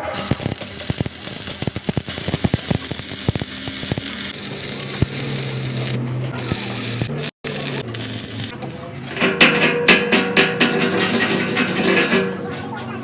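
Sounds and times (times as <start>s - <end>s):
welding low hum: 0.0s - 8.6s
welding spatter crackling: 0.0s - 8.6s.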